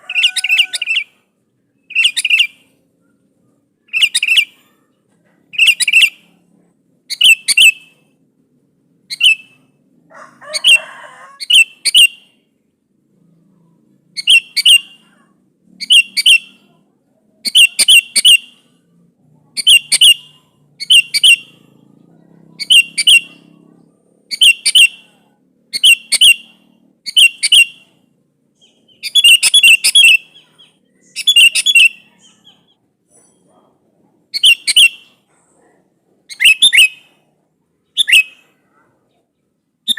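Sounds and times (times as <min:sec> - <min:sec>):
bird calling in short phrases: 0:14.2 - 0:18.8, 0:19.5 - 0:21.8, 0:22.5 - 0:23.6, 0:24.3 - 0:28.0, 0:28.6 - 0:32.8, 0:34.3 - 0:35.3, 0:36.3 - 0:37.2, 0:37.8 - 0:38.7.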